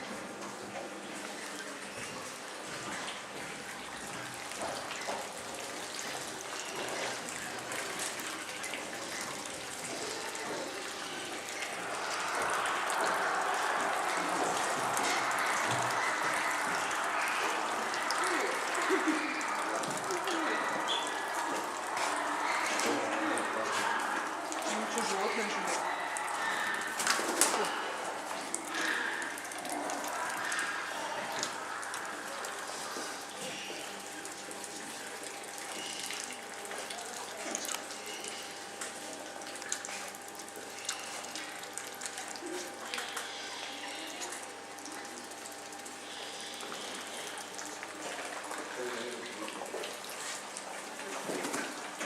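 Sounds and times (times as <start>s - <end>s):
running water rushing: 1.0s - 52.0s
cooing call: 10.2s - 24.9s.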